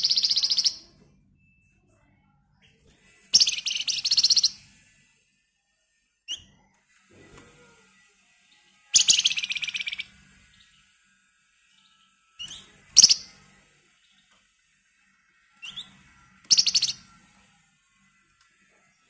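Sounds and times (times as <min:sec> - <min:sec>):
songbird trilling: 0:00.0 - 0:00.8, 0:03.4 - 0:04.6, 0:09.0 - 0:10.1, 0:12.4 - 0:13.3, 0:16.5 - 0:17.0.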